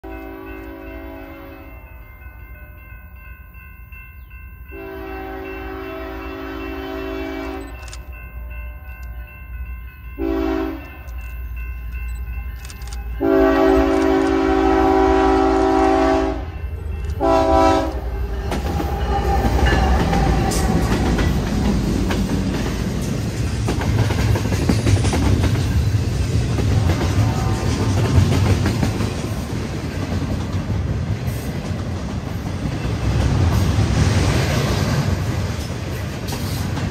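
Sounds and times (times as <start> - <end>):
locomotive air horn blasts: 0.0 - 2.0, 4.7 - 7.8, 10.2 - 11.1, 13.2 - 18.1, 27.0 - 27.9
train rumble and wheel clatter: 0.0 - 36.9.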